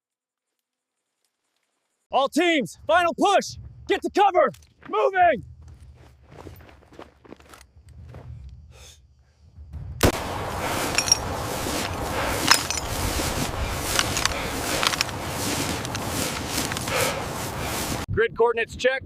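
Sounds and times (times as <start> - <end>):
quiet footsteps: 4.5 - 8.5, 10.0 - 18.1
gunfire cracks: 10.0 - 10.4.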